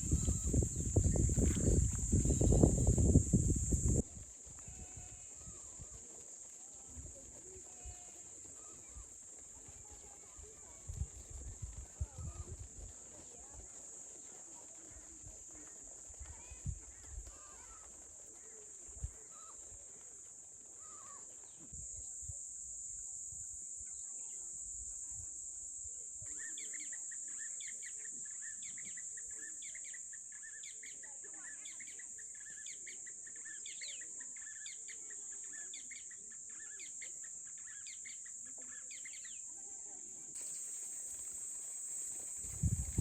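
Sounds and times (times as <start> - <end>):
high-pitched hiss: 0.0 - 4.0, 20.8 - 29.7, 40.4 - 43.0.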